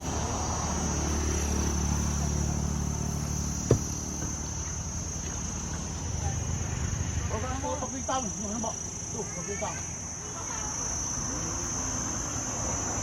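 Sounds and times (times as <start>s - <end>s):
insects trilling: 0.0s - 13.0s
sharp knock: 3.7s - 4.4s.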